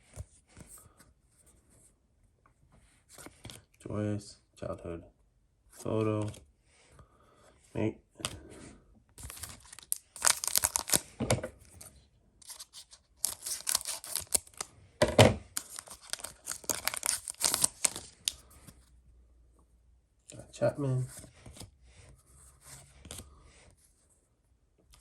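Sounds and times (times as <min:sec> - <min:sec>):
card pack wrapper tearing and crinkling: 0:09.2 - 0:11.2, 0:12.4 - 0:14.7, 0:15.5 - 0:18.5.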